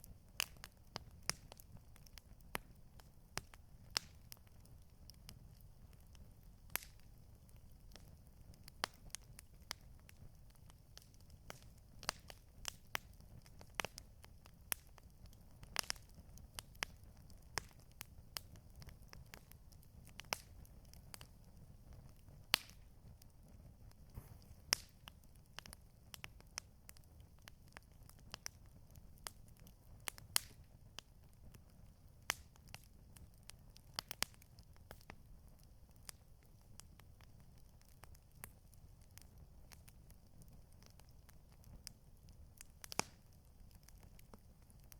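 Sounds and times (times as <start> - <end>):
campfire crackling: 0.0 - 44.9.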